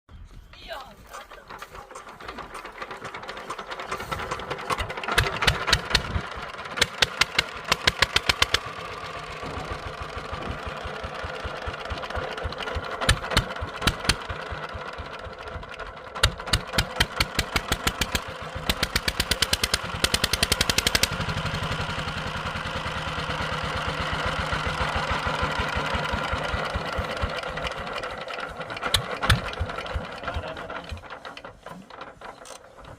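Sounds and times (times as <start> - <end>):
diesel engine running: 0.9 - 32.9
loud sharp engine knocks: 4.6 - 11.6, 12.7 - 14.5, 16.2 - 21.2, 28.8 - 31.1.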